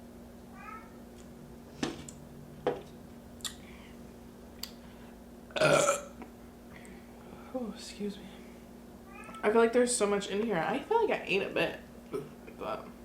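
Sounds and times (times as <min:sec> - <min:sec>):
loud burp: 0:05.5 - 0:06.1.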